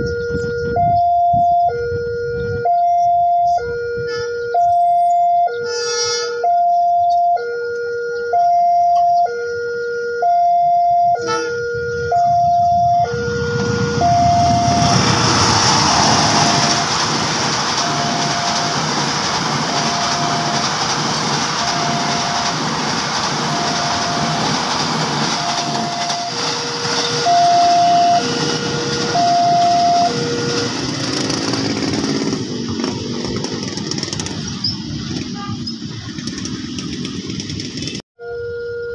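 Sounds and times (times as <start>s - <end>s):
two-tone electronic warning alarm: 0.0s - 33.4s, 38.2s - 38.9s
train passing: 11.2s - 38.0s.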